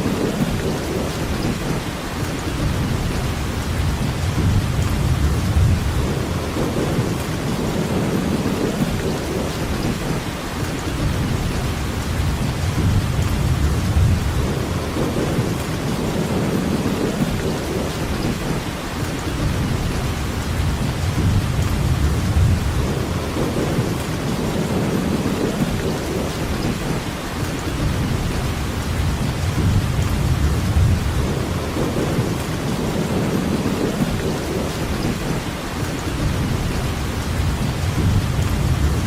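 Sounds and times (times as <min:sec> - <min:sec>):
steady rainfall: 0:00.0 - 0:39.0
low rumble: 0:02.6 - 0:07.3, 0:19.4 - 0:24.1, 0:27.8 - 0:33.2, 0:36.2 - 0:39.0.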